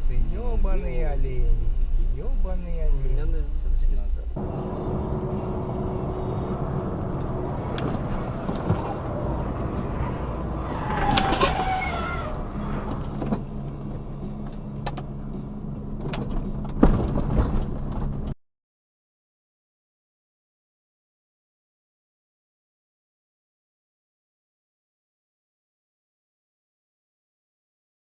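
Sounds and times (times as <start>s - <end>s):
vehicle rumble inside cab: 4.4s - 18.4s.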